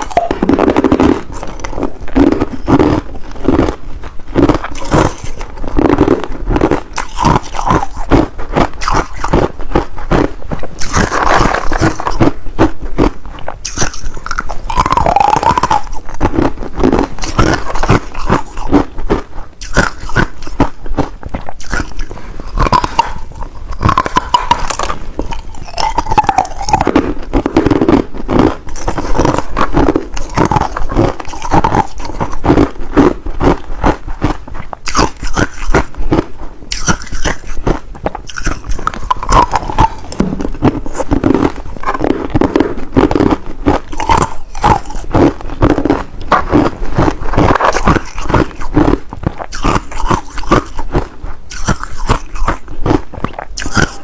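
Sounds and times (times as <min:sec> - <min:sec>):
ice crunching while chewed: 0:00.0 - 0:54.0.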